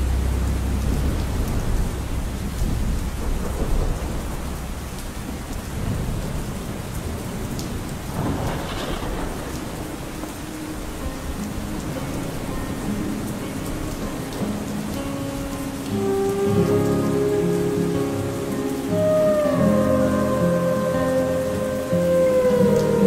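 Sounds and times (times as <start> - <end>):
rain hiss: 0.0 - 23.0
raindrop ticks: 0.0 - 23.0
rolling thunder: 0.1 - 14.7.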